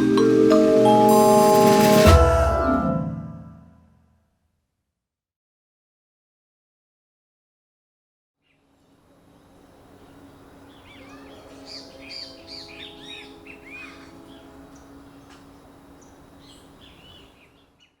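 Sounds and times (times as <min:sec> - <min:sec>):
small birds chirping: 0:08.4 - 0:18.0.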